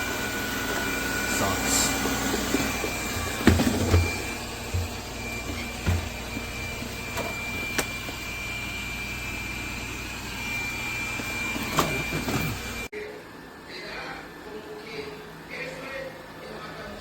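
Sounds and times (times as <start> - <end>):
robot vacuum cleaner whine: 0.0 - 12.9.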